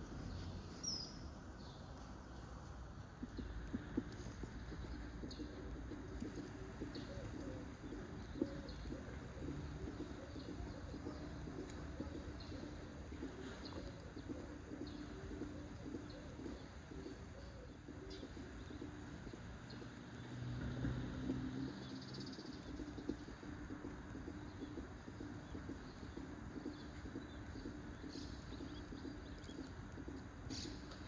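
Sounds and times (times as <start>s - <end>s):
dove cooing: 6.0s - 19.2s.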